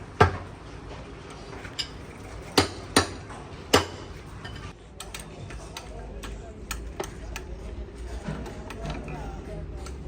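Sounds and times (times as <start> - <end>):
hammer striking metal: 2.6 - 4.2.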